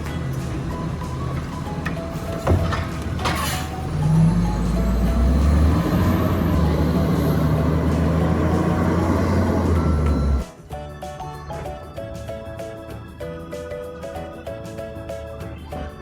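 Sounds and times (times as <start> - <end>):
garbage truck diesel engine: 0.0 - 10.6.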